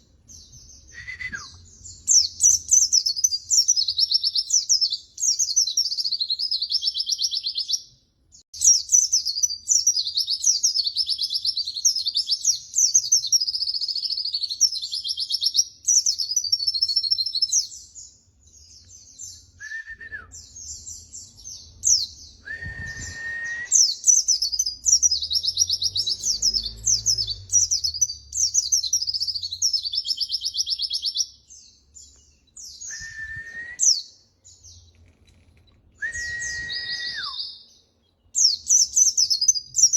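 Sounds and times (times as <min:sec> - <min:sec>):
bird high twittering song: 0:00.0 - 0:39.9
lower whistled notes: 0:19.6 - 0:20.5, 0:22.4 - 0:24.0, 0:32.6 - 0:34.0, 0:36.0 - 0:37.6.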